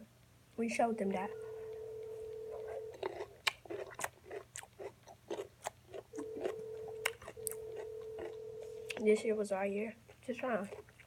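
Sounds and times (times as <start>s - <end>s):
steady low hum: 0.7s - 3.5s, 6.0s - 9.2s
close chewing and biting: 1.3s - 9.2s, 9.9s - 11.0s.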